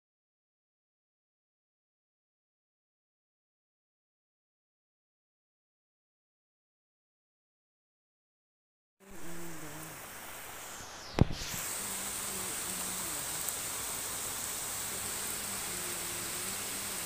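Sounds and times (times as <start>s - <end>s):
rain on a flat roof: 9.0s - 17.0s.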